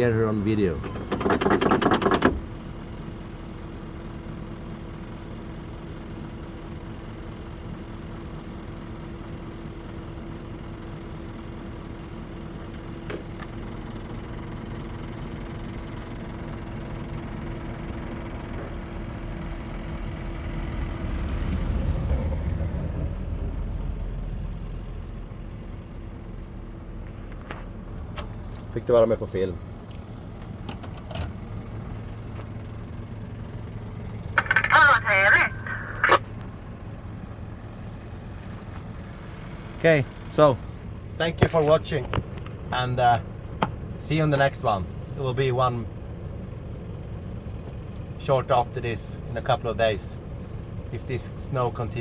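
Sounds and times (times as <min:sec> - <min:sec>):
diesel engine idling: 0:00.0 - 0:52.0
truck driving past: 0:13.6 - 0:27.0.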